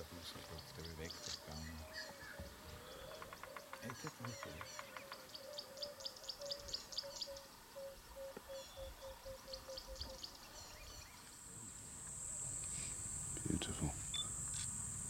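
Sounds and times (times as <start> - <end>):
high-pitched insect buzz: 10.6 - 15.0.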